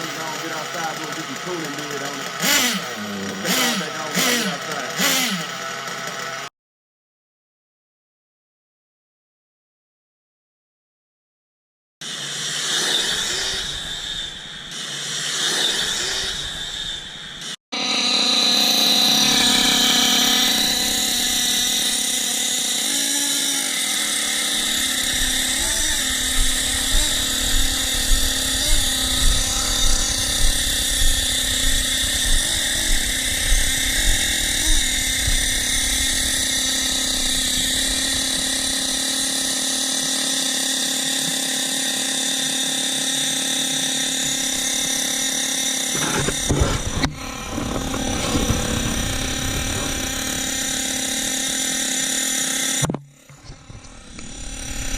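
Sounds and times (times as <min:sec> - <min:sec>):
nitro engine buzzing whine: 0:00.0 - 0:06.5, 0:12.0 - 0:54.9
short regular pulses: 0:00.0 - 0:06.5, 0:19.1 - 0:39.7, 0:44.4 - 0:52.8.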